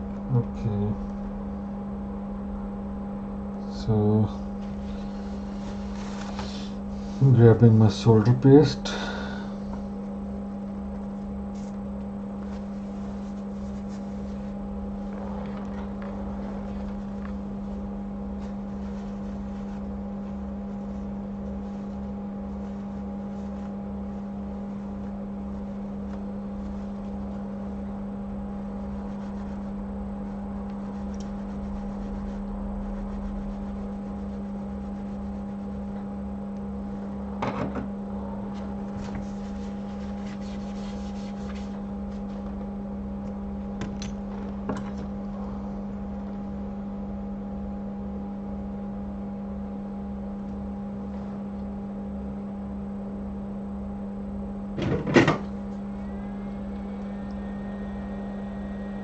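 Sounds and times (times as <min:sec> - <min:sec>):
electric hum of bench equipment: 0:00.0 - 0:59.0.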